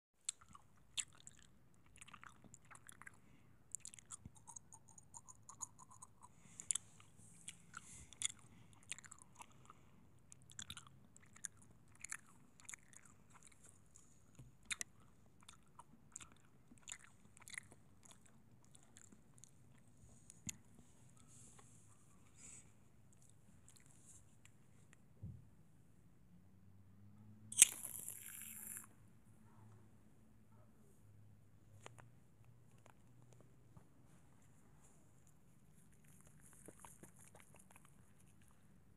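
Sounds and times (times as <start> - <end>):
mouth clicks and crackles: 0.3 - 14.0.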